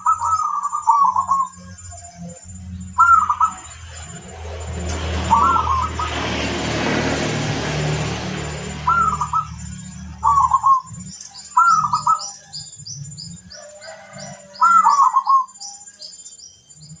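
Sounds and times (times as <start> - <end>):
dove cooing: 0.0 - 1.6, 3.0 - 3.7, 5.1 - 6.5, 8.7 - 12.4, 13.5 - 15.5.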